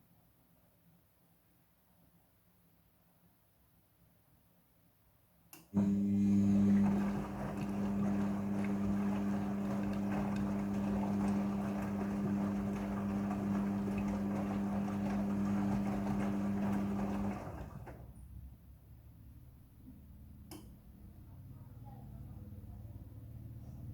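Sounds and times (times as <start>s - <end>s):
washing machine electric hum: 5.7s - 18.7s.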